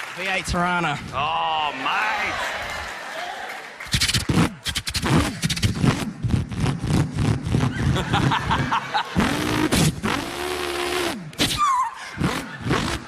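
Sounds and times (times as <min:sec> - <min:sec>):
man imitating car engine: 0:09.1 - 0:11.1, 0:12.2 - 0:13.0.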